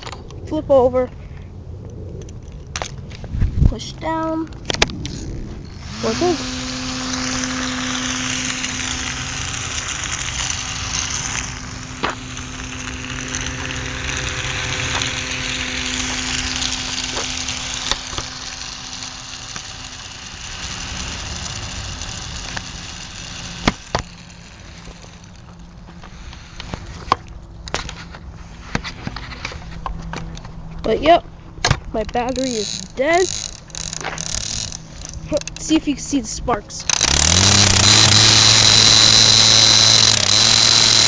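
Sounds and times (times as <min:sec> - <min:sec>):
small electric motor humming: 0:04.4 - 0:30.2, 0:31.9 - 0:41.0
sharp clicks: 0:31.6 - 0:35.8, 0:36.8 - 0:41.0.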